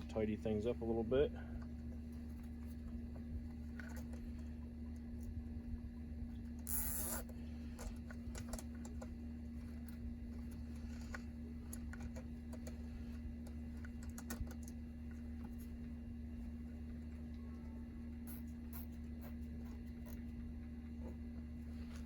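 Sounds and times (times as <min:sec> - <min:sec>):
steady low hum: 0:00.0 - 0:22.0
cable tie clicks and rustles: 0:06.5 - 0:15.9.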